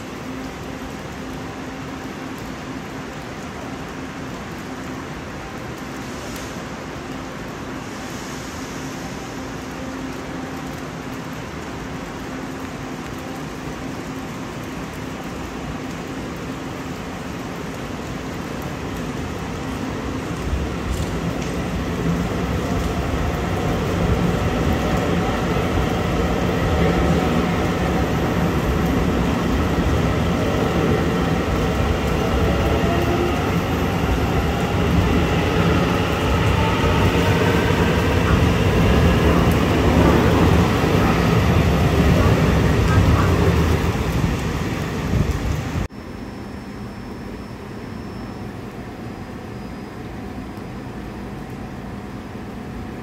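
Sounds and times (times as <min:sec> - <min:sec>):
train rumbling on rails: 0:00.0 - 0:45.9
faint gliding whines: 0:45.9 - 0:52.1.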